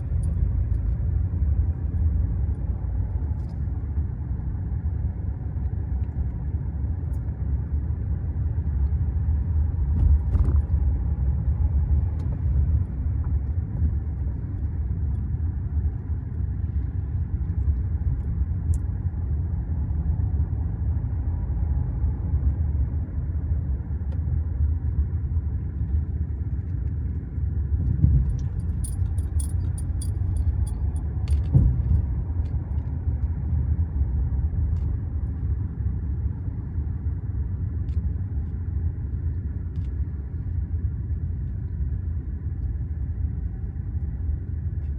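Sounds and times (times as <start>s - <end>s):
car road and engine rumble: 0.0s - 44.9s
high jingling: 28.4s - 31.0s.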